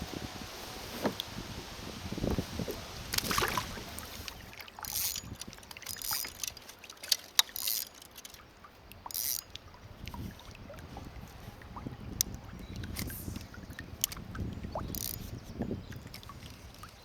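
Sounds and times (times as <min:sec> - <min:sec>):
paddle splashing in water: 0:00.0 - 0:15.4
paddle knocking against hull: 0:02.2 - 0:06.6.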